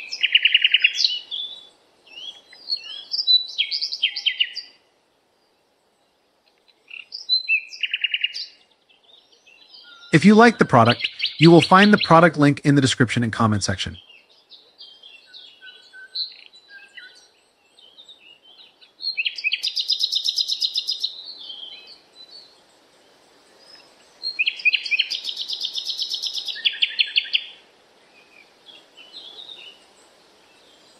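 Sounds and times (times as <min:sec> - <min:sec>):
faint steady hiss: 0:10.2 - 0:14.0, 0:25.1 - 0:30.9.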